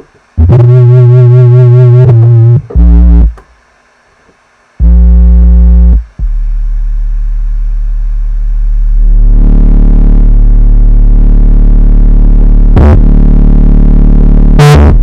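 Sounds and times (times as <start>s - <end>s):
distorted electronic buzzing tones: 0.0s - 3.4s, 4.8s - 15.0s
low steady drone: 4.8s - 15.0s.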